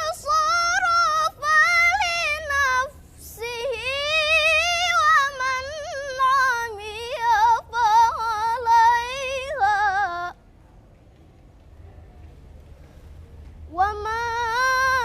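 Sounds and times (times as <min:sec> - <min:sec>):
girl reciting melodically: 0:00.0 - 0:10.4, 0:13.7 - 0:15.0.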